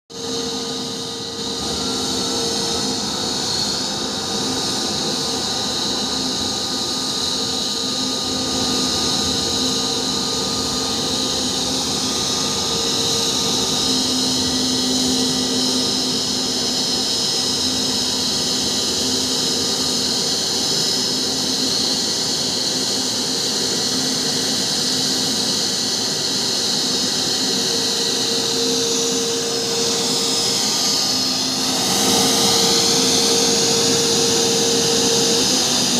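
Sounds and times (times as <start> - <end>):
jet engines whining: 0.1 - 35.9.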